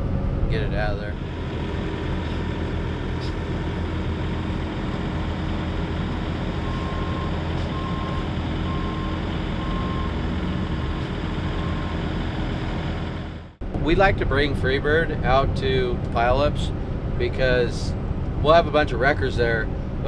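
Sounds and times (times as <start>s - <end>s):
truck engine running: 0.0s - 20.0s
reversing alarm beeping: 6.6s - 10.2s, 10.8s - 12.0s.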